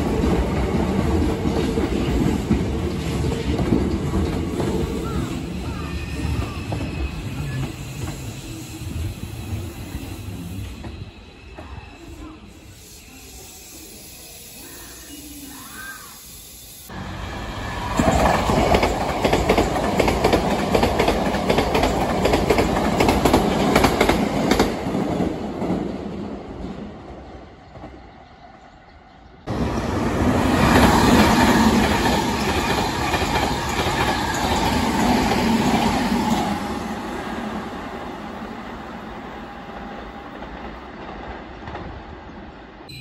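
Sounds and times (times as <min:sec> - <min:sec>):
train passing close: 0:00.0 - 0:43.0
train wheels clattering on rails: 0:17.8 - 0:26.9, 0:30.4 - 0:36.6.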